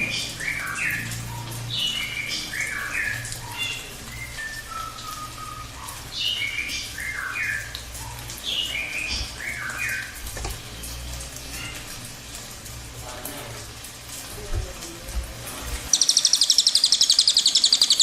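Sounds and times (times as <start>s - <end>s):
bird whistling song: 0.0s - 7.7s, 8.6s - 10.1s, 15.9s - 18.0s.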